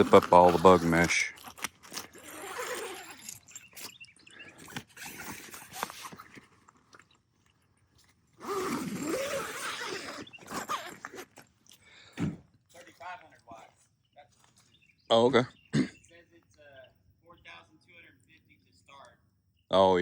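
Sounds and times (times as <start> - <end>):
tent zipper rasping: 0.0 - 6.9, 8.3 - 12.4.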